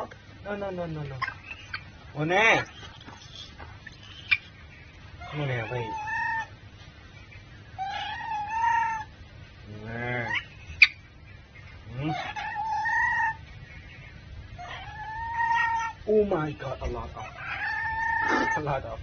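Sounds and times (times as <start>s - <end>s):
monkey crying: 1.1s - 4.6s, 5.2s - 6.6s, 7.8s - 11.0s, 11.7s - 16.2s, 17.0s - 19.0s.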